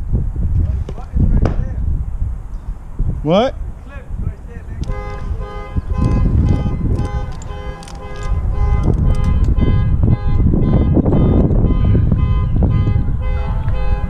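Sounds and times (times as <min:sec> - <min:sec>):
loud low rumble: 0:00.0 - 0:14.0
repeating electronic tones: 0:04.8 - 0:12.4.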